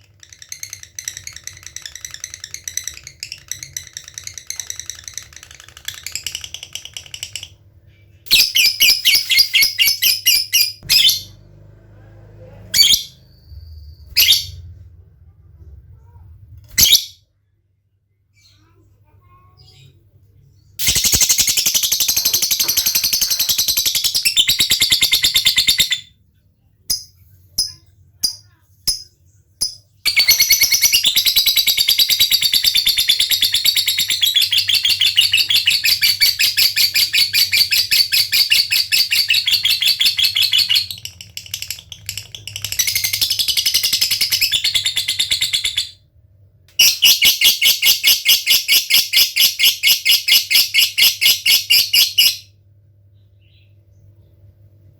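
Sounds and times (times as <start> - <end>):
sharp bird chirps: 8.3 - 11.3, 20.8 - 26.0.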